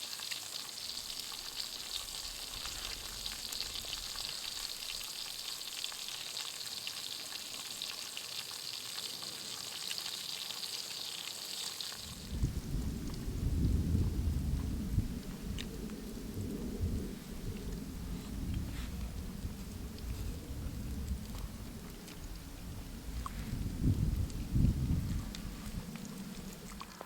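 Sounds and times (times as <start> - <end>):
steak sizzling over campfire: 0.0 - 27.0
crackles and pops: 11.9 - 27.0
low rumbling noise: 12.0 - 27.0.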